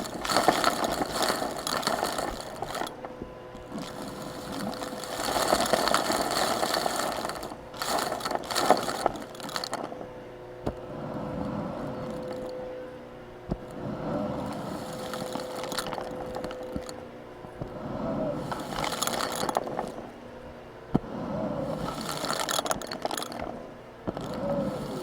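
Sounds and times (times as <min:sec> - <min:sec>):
debris rattling through vacuum: 0:00.0 - 0:10.2, 0:11.2 - 0:12.6, 0:14.1 - 0:17.0, 0:18.3 - 0:20.2, 0:21.6 - 0:25.0
vacuum cleaner humming: 0:00.0 - 0:20.4, 0:21.2 - 0:25.0.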